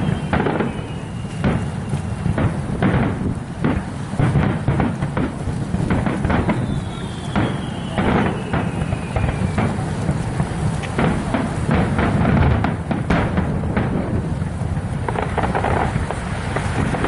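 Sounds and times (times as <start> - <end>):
whistling firework shell: 0.0 - 3.2, 5.9 - 10.2
fireworks bangs: 0.0 - 17.0
fireworks rumble: 0.0 - 17.0.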